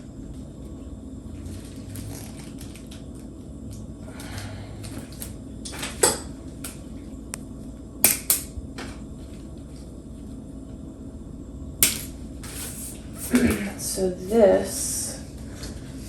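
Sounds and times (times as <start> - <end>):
plastic strands crackling and clicking: 1.6 - 5.8.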